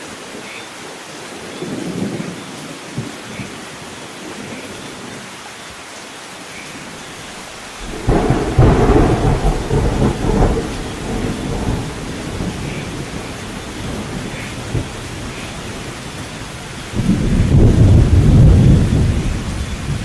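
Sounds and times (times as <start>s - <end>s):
steady rain: 0.0s - 20.0s
thunder crack and rumble: 7.8s - 20.0s.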